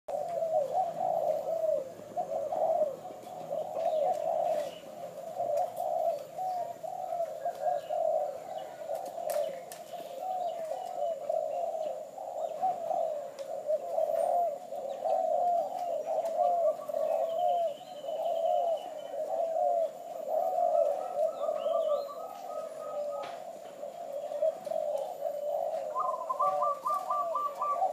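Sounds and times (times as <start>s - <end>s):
dove cooing: 0.1s - 27.9s
faint bird chirps: 0.1s - 27.9s.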